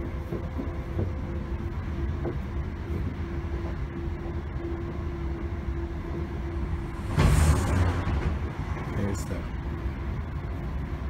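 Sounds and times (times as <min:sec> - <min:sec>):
faint steady hum: 0:00.0 - 0:11.0
train wheels rumbling on track: 0:00.0 - 0:11.0
loud rushing noise: 0:06.3 - 0:10.0.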